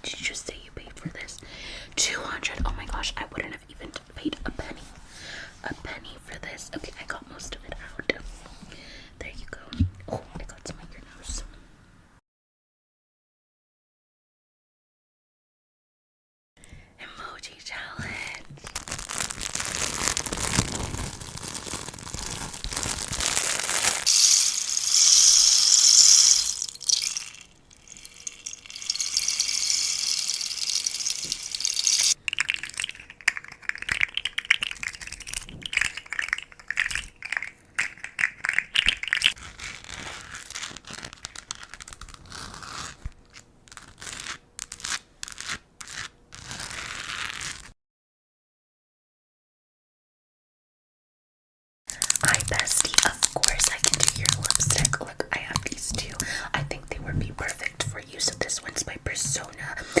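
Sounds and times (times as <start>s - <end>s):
rustling and crinkling: 18.0s - 24.1s, 33.3s - 47.7s, 51.9s - 58.6s
crackling: 18.4s - 45.6s, 51.9s - 56.2s.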